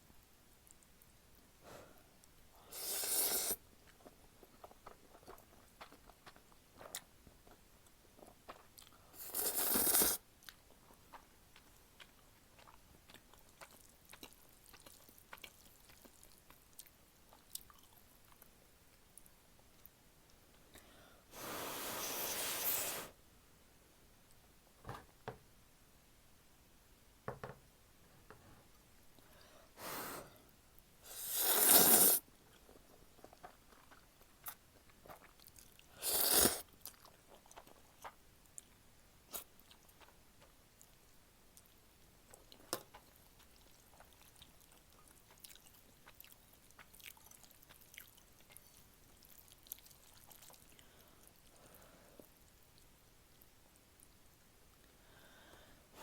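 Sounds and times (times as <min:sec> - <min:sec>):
quiet chewing with wet clicks: 0:00.1 - 0:02.6, 0:03.5 - 0:21.0, 0:32.3 - 0:55.7
person slurping noodles: 0:02.7 - 0:03.6, 0:09.2 - 0:10.2, 0:21.4 - 0:23.2, 0:31.1 - 0:32.2, 0:36.0 - 0:36.7.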